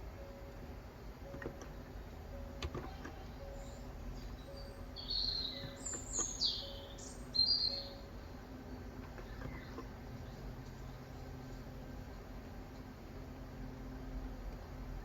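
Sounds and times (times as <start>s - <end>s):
bird chirping and whistling: 3.5s - 8.1s.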